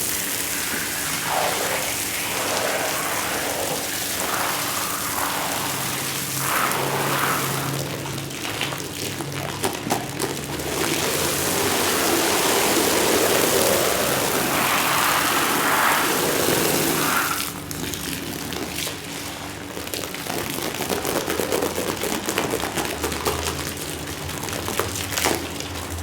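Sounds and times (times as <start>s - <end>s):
low machine hum: 0.0s - 19.6s
water spraying onto rug: 0.0s - 26.0s.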